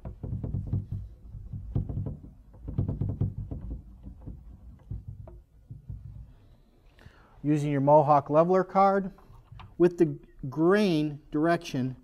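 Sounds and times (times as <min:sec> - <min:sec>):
rubbing on wood: 0:00.0 - 0:06.6.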